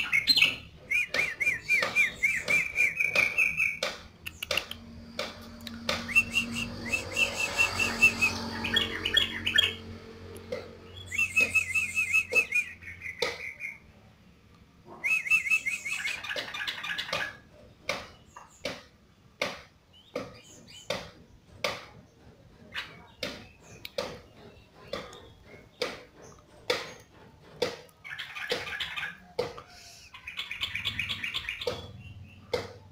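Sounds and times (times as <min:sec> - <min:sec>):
bird chattering song: 0:00.0 - 0:04.9, 0:05.8 - 0:09.9, 0:10.8 - 0:13.9, 0:14.9 - 0:19.0, 0:19.9 - 0:21.4, 0:22.0 - 0:27.2, 0:27.9 - 0:32.9
sharp bird clicks: 0:01.1 - 0:06.5.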